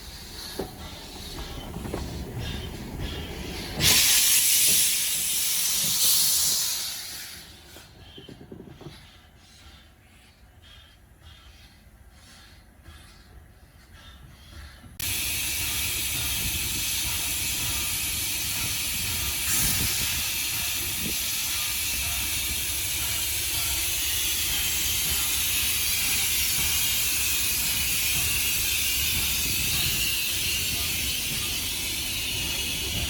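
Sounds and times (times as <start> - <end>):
steam locomotive hissing: 0.0 - 33.0.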